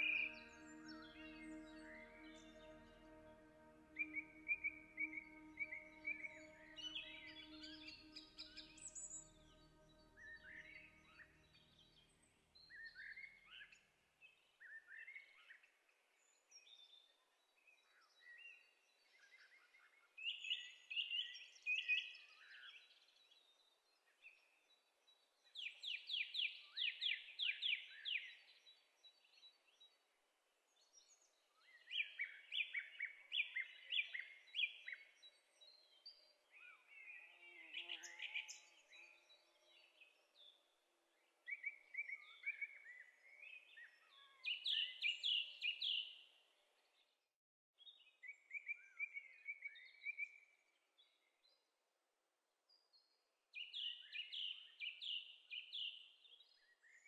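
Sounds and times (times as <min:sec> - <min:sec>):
songbird singing: 0:00.0 - 0:15.5, 0:24.2 - 0:29.9, 0:30.9 - 0:46.3, 0:53.5 - 0:57.0
faint outdoor background: 0:00.0 - 0:57.0.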